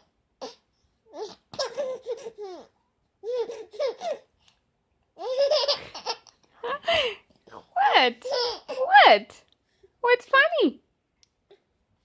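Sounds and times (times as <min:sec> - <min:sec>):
baby giggling: 0:00.4 - 0:04.3, 0:05.2 - 0:07.1, 0:08.2 - 0:08.9.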